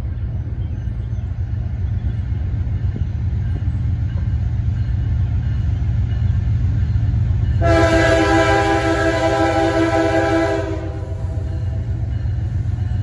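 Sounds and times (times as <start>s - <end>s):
passing train rumble: 0.0s - 13.0s
locomotive air horn blast: 7.6s - 11.6s.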